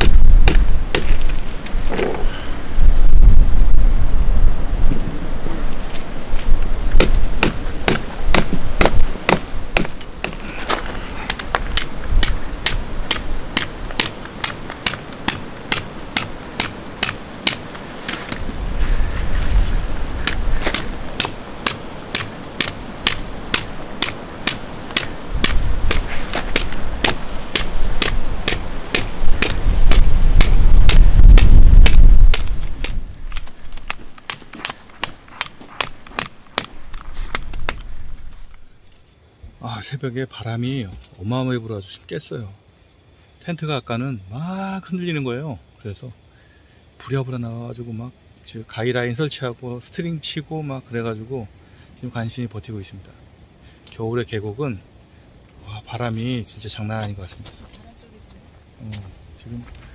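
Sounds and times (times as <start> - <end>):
tent pegs being hammered: 0.0 - 1.4, 7.0 - 10.4, 11.3 - 17.8, 20.2 - 33.0, 33.9 - 37.9
wind gusts on microphone: 0.0 - 9.8, 10.4 - 33.8.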